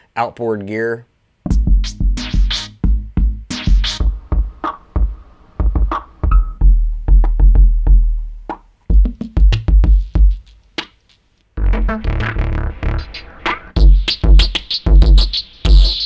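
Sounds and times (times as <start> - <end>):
deep kick drums: 1.5 - 10.6, 13.8 - 16.0
snares and hi-hats: 1.5 - 11.4, 13.1 - 16.0
drum machine beat: 1.5 - 16.0.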